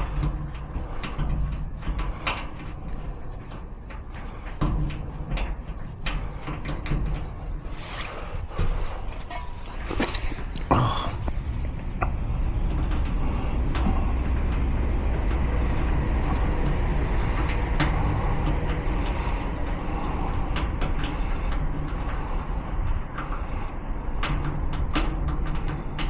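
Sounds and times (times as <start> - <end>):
light clicks and taps: 0.0 - 26.0
low mechanical rumble: 0.0 - 26.0.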